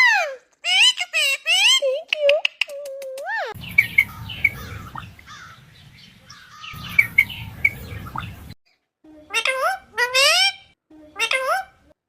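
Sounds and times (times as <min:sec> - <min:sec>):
low rumbling background noise: 0:03.6 - 0:08.6
bird chirping: 0:03.6 - 0:11.8.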